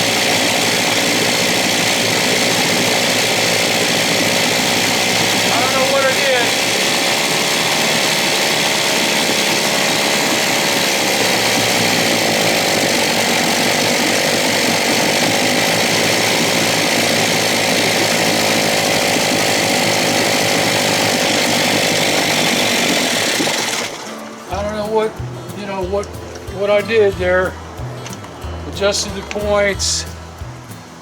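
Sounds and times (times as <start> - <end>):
outboard motor whirring: 0.0 - 31.0.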